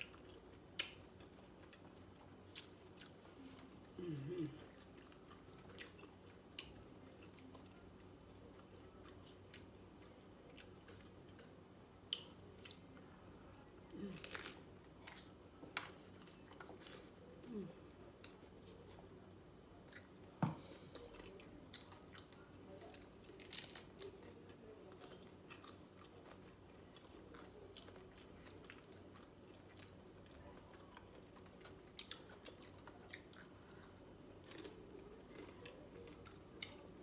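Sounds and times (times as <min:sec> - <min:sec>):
crunching taco shells: 0:14.0 - 0:17.4, 0:20.9 - 0:37.0.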